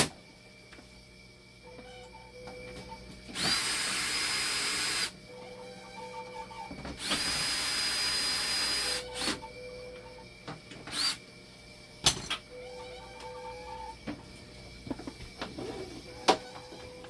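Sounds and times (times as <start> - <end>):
cordless screwdriver motor whine: 3.3 - 5.2, 7.0 - 9.5, 10.9 - 11.2.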